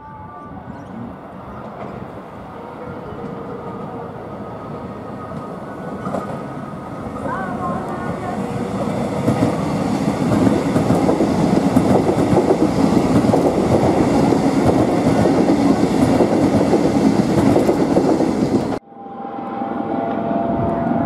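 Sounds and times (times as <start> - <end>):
train wheels clattering over rails: 8.5 - 18.8.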